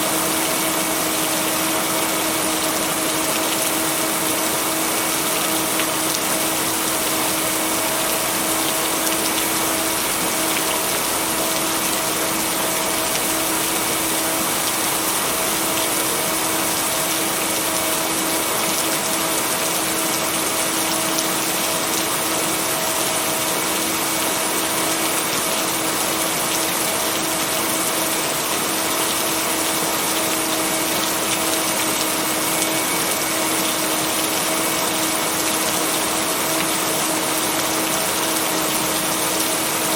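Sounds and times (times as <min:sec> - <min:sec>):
steady rain: 0:00.0 - 0:39.9
hum of pure tones: 0:30.0 - 0:36.2.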